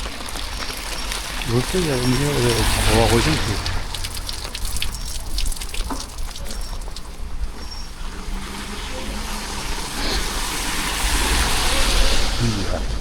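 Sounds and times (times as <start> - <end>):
drip-like ticks: 0.0 - 7.7
faint vehicle hum: 0.0 - 13.0
low street rumble: 0.0 - 13.0
rain hiss: 0.0 - 13.0.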